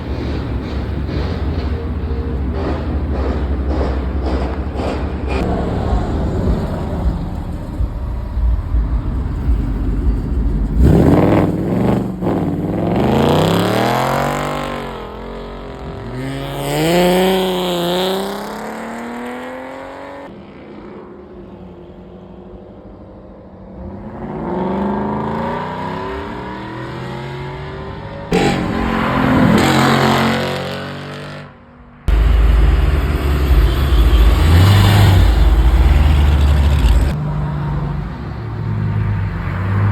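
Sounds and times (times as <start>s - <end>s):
heavy low rumble: 0.0s - 12.9s
cars accelerating hard: 0.0s - 21.0s, 23.6s - 39.9s.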